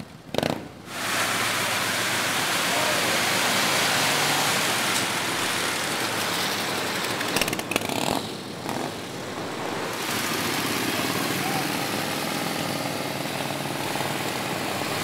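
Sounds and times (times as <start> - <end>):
motorcycle engine running: 5.2 - 15.0.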